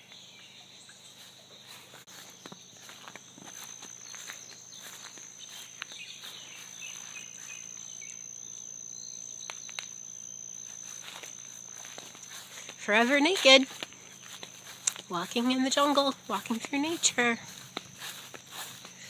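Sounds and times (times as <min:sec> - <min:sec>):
insect high-pitched drone: 0:00.0 - 0:19.0
insects chirping: 0:00.0 - 0:19.0
footsteps clicks and rustles: 0:01.2 - 0:07.6, 0:11.0 - 0:19.0.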